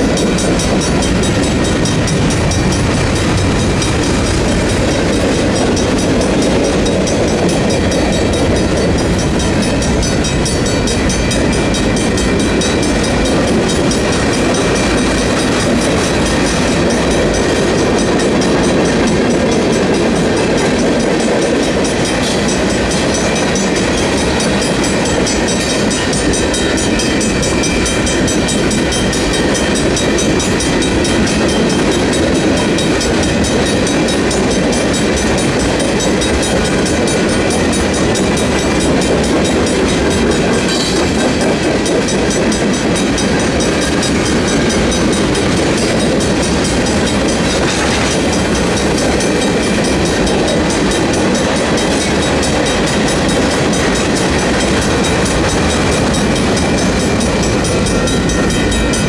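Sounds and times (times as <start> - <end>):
crossing warning bells ringing: 0.0 - 59.0
train wheels clacking over rail joints: 0.0 - 59.0.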